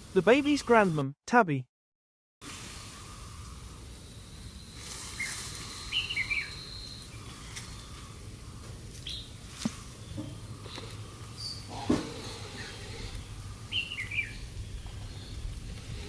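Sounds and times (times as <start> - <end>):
bird chirps: 4.4 - 8.0, 11.4 - 12.9, 13.7 - 15.5.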